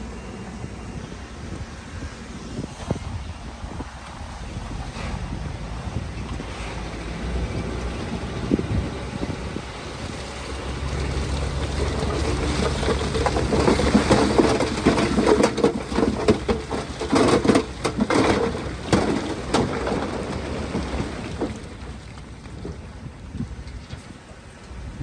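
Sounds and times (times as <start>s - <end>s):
diesel machinery rumbling: 0.0s - 25.0s
rock and dirt tumbling: 6.0s - 24.3s.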